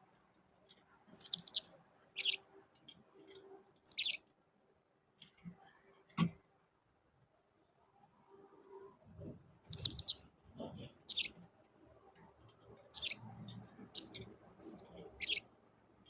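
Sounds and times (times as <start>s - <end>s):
parrot high-pitched chirps: 1.1s - 2.4s, 3.9s - 4.2s, 9.7s - 10.2s, 11.1s - 11.3s, 13.0s - 13.2s, 14.0s - 15.5s.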